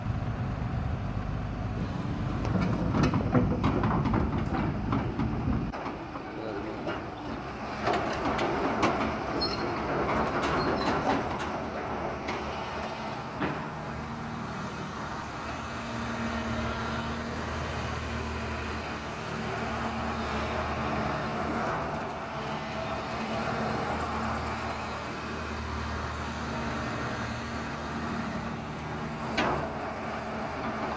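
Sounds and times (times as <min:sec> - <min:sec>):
diesel engine rumbling: 0:00.0 - 0:30.9.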